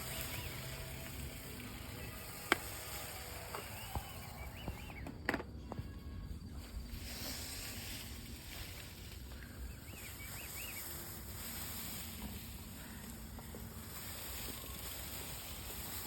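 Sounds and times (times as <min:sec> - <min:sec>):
bike tires hissing on dirt: 0:00.0 - 0:05.0, 0:06.4 - 0:16.0
bike knocks and rattles: 0:02.0 - 0:06.0.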